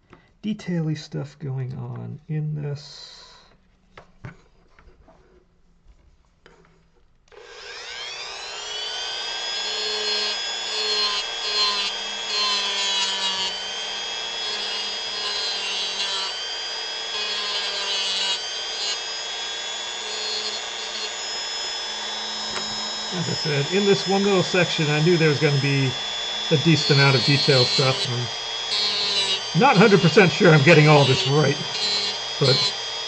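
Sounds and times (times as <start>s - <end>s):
rotary tool whining: 6.4s - 33.0s
bit grinding against wood: 7.4s - 33.0s.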